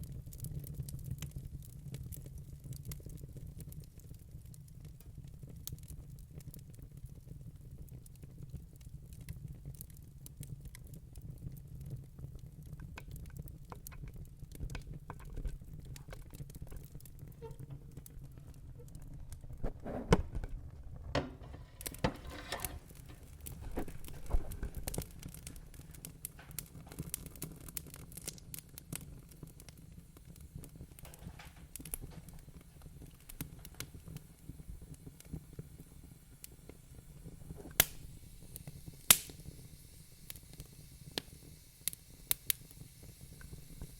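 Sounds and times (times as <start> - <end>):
low rumble of flames: 0.0 - 43.9
wood fire crackling: 0.0 - 43.9
sharp fire pops: 12.8 - 43.9.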